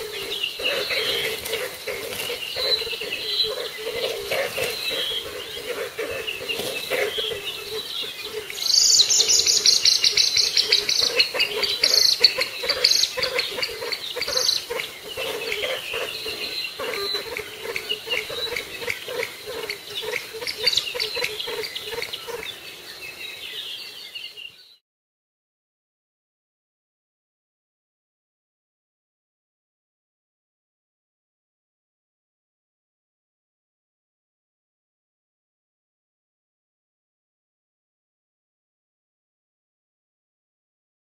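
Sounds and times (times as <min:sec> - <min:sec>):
bird calls and chirps: 0:00.0 - 0:24.8
insects: 0:00.0 - 0:24.8.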